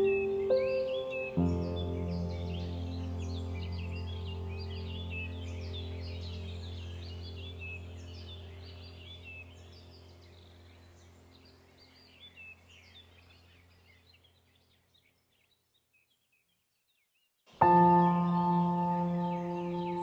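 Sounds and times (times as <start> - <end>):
bell-like chord: 0.0 - 9.7, 17.6 - 20.0
ambient music with drone: 0.0 - 12.6, 17.7 - 20.0
birdsong chirping: 0.0 - 20.0.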